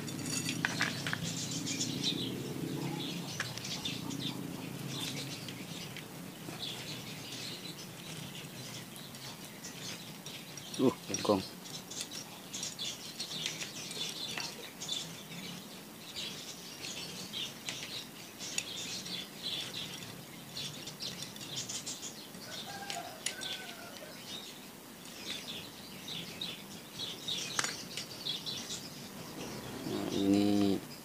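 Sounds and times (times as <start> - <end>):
small birds chirping: 0.0 - 31.0
low bird call: 29.2 - 31.0.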